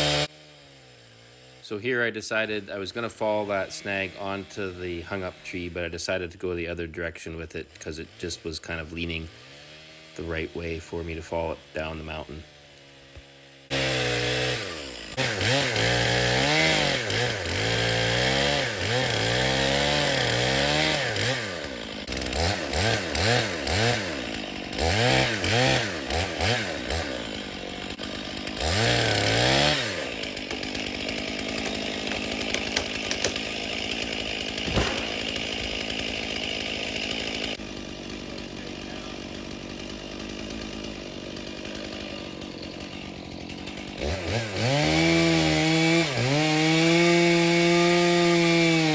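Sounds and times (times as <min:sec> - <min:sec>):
chainsaw revving and idling: 0:00.0 - 0:48.9.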